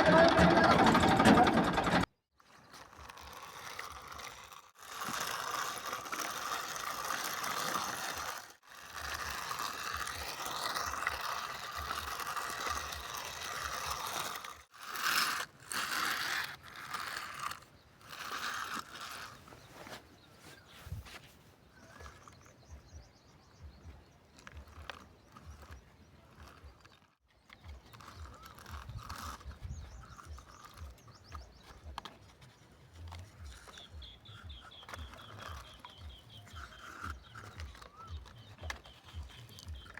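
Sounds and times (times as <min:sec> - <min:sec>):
toy gears whirring and clicking: 0:00.0 - 0:19.6, 0:21.8 - 0:22.6, 0:24.3 - 0:39.9.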